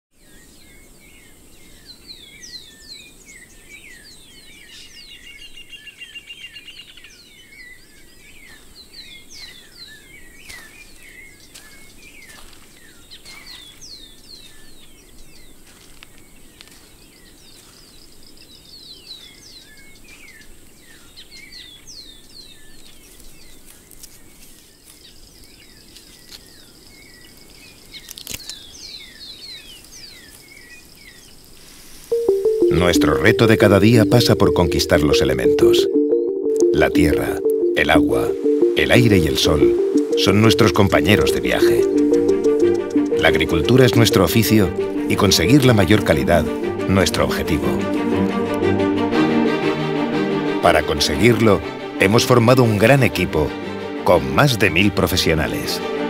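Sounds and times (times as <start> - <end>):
small birds chirping: 0.2 - 32.1.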